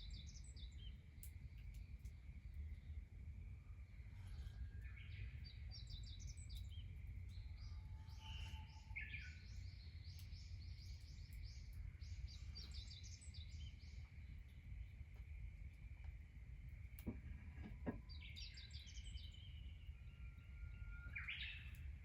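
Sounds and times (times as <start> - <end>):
low steady rumble: 0.0 - 22.0
small birds chirping: 4.4 - 16.2, 17.0 - 20.1.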